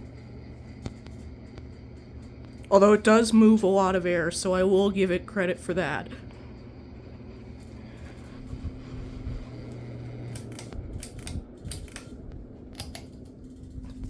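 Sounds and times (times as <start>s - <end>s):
ceiling fan motor hum: 0.0s - 14.0s
sharp clicks: 10.3s - 14.0s.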